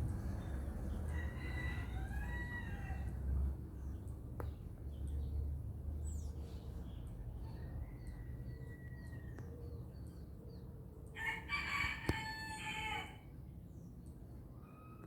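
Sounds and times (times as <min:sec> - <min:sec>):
rooster crowing: 0:01.1 - 0:03.1, 0:11.2 - 0:13.2.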